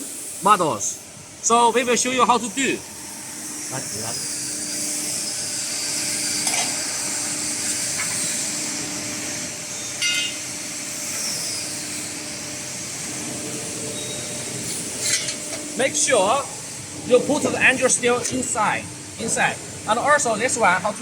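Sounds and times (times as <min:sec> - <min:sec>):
idling workshop machinery hum: 0:00.0 - 0:21.0.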